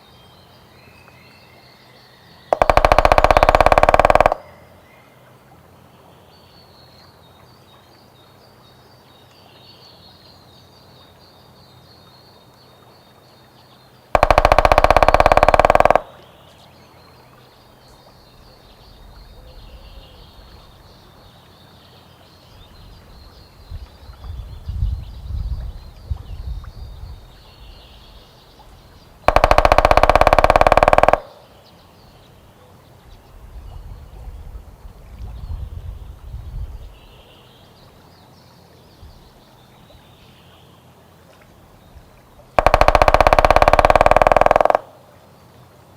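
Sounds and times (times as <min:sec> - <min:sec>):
woodpecker drumming: 0:02.5 - 0:04.6, 0:14.1 - 0:16.3, 0:29.3 - 0:31.6, 0:42.6 - 0:45.1.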